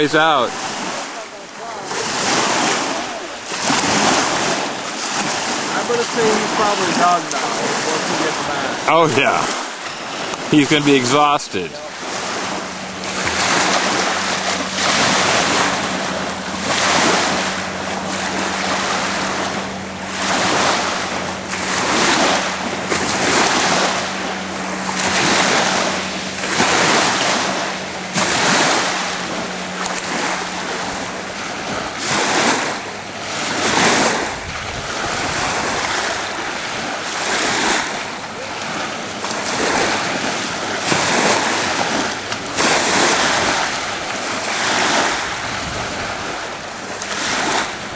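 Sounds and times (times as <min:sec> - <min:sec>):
waves breaking on shore: 0:00.0 - 0:47.9
wind on microphone: 0:11.7 - 0:47.9.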